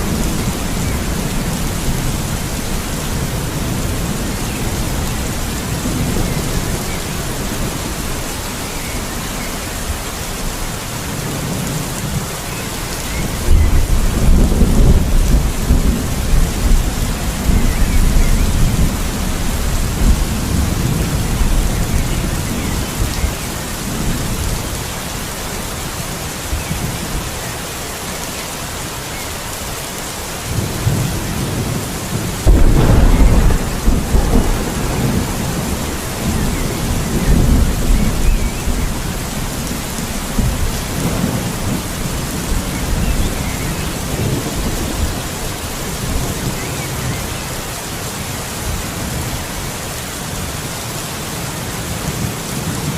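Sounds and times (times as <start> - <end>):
steady rain: 0.0 - 52.9
thunder rumbling: 13.1 - 24.6, 30.5 - 47.2.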